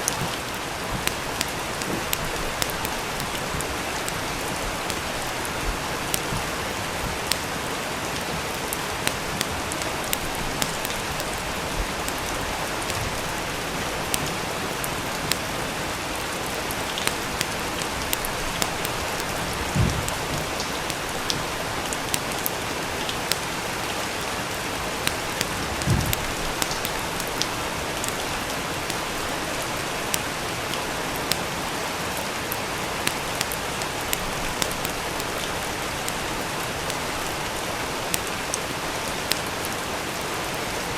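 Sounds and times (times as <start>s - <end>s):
steady rain: 0.0s - 40.9s
wood fire crackling: 0.0s - 40.9s
soft low thumps: 19.4s - 20.6s.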